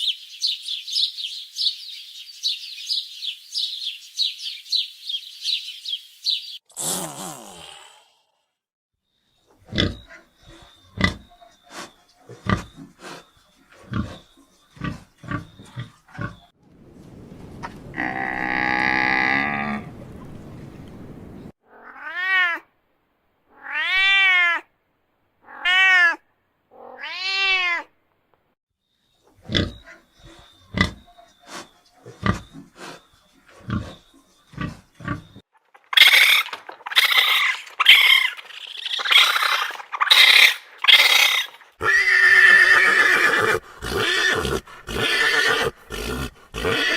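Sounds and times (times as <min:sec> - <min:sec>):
loud rough animal call: 0:17.9 - 0:20.0.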